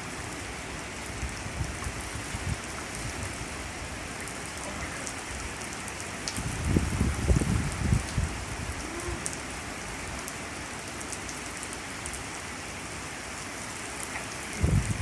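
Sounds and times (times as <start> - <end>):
rumbling gusts of wind: 0.0 - 10.2, 14.2 - 15.0
heavy rain falling: 0.0 - 15.0.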